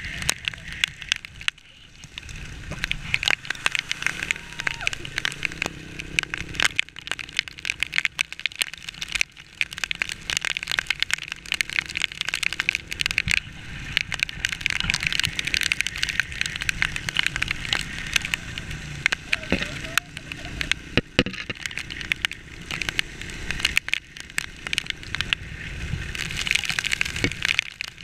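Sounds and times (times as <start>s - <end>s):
rain hitting camera: 0.0s - 28.0s
rain tapping on plastic poncho: 0.0s - 28.0s
rushing noise of riding in rain: 0.0s - 28.0s.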